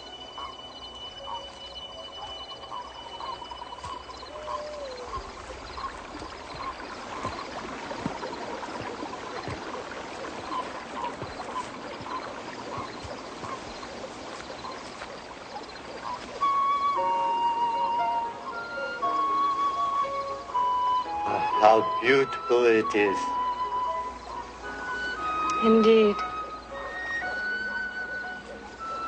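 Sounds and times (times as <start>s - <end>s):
chirping animal calls: 0.0s - 22.1s
water washing: 0.0s - 29.0s
wavering piping tune: 0.0s - 29.0s.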